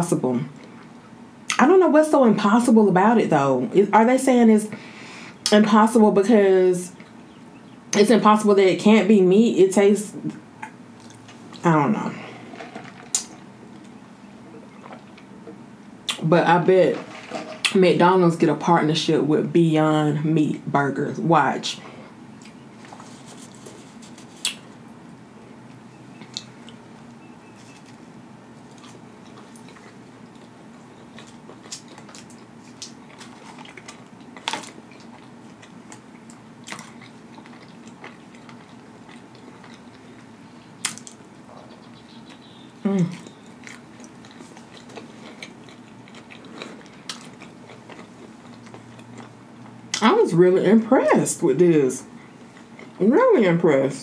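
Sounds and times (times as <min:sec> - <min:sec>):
chewing crunchy food: 0:14.6 - 0:16.2, 0:27.5 - 0:50.0, 0:52.1 - 0:53.0
person humming: 0:42.8 - 0:43.2.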